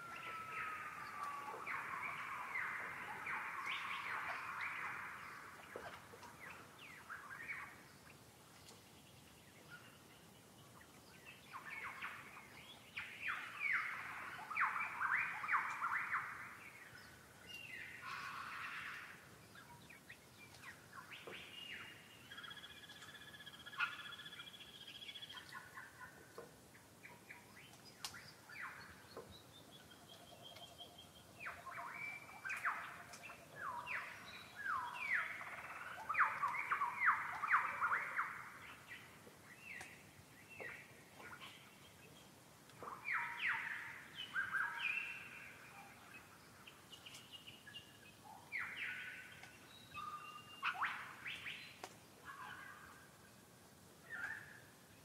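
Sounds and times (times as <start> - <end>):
birds singing and chirping: 0.0 - 53.2, 54.0 - 54.7
held whistled bird tones: 48.6 - 51.7.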